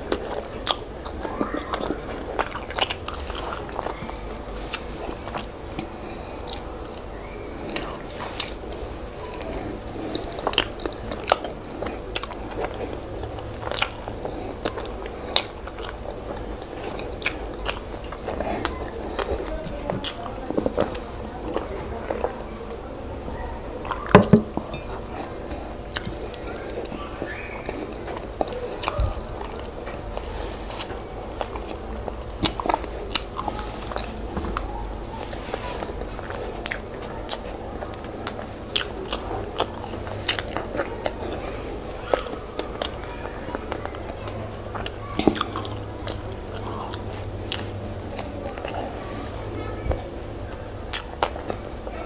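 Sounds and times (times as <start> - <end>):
person chewing and biting: 0.0 - 22.2, 23.8 - 49.6, 50.4 - 51.7.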